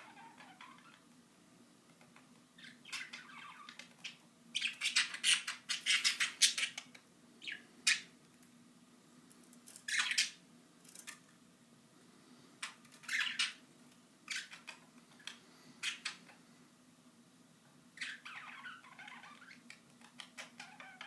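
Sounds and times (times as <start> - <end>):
budgies squawking and chattering: 0.0 - 1.0, 2.6 - 8.1, 9.9 - 10.4, 12.6 - 13.6, 14.3 - 16.4, 18.0 - 21.0.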